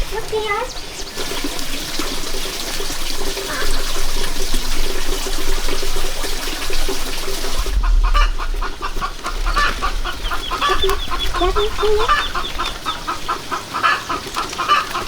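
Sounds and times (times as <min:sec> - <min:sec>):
water running: 0:00.0 - 0:15.0
chickens clucking: 0:07.3 - 0:15.0.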